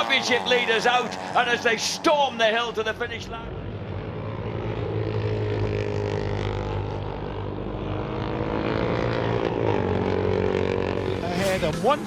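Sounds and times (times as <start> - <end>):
motorcycle engines at high revs: 0.0 - 12.0.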